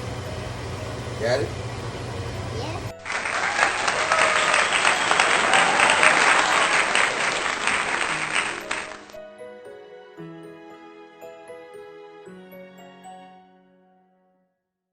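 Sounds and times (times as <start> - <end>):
crowd applause: 2.9 - 9.2.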